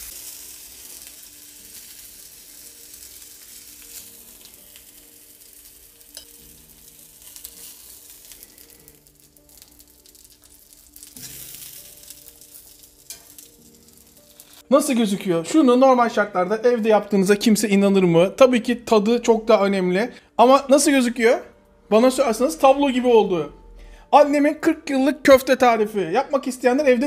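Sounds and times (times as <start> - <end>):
food sizzling in grill pan: 0.0 - 14.7
metal tongs clicking: 13.1 - 13.5.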